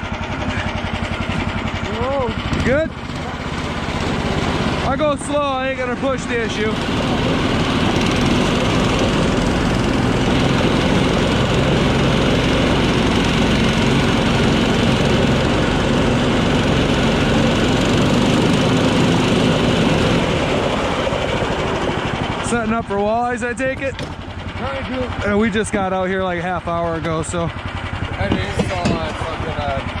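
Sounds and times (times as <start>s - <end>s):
tracked snow machine engine running: 0.0s - 30.0s.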